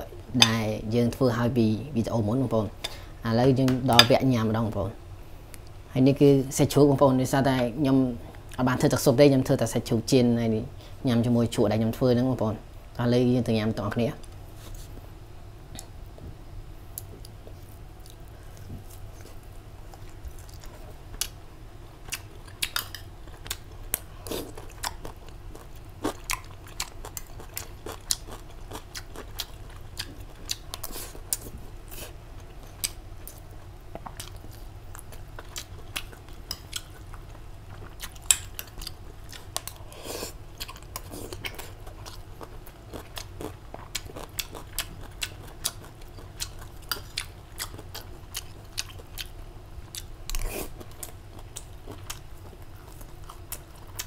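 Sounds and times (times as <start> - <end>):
low steady hum: 0.0 - 54.0
person chewing and crunching: 17.0 - 21.4, 22.0 - 54.0.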